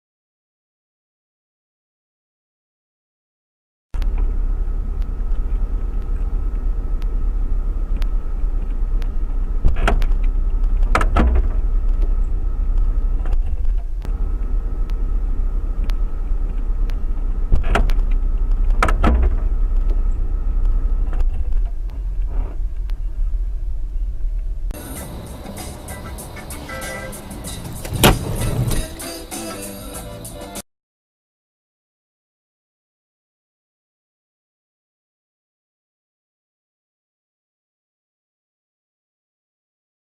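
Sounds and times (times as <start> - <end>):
engine and road noise rumble: 4.0 - 30.6.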